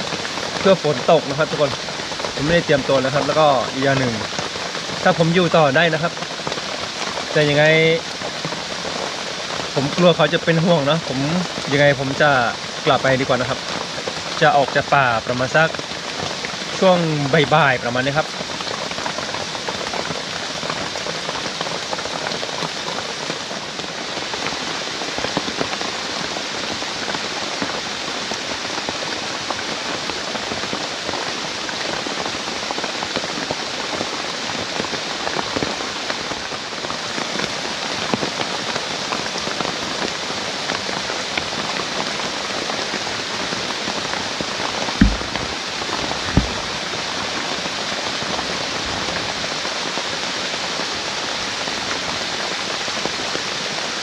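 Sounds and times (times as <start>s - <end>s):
heavy rain falling: 0.0s - 54.0s
short low thumps: 45.0s - 46.8s.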